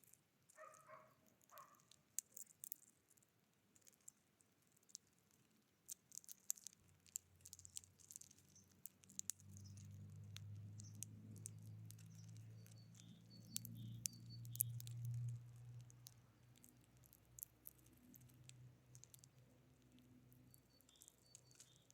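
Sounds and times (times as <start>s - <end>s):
low steady hum: 9.4s - 21.9s.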